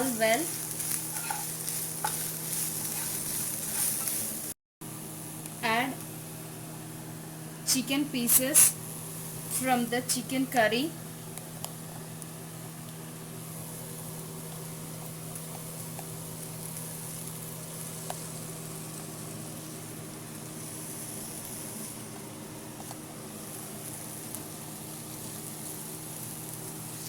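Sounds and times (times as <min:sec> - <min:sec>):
chicken sizzling in oil: 0:00.0 - 0:04.6, 0:12.0 - 0:27.0.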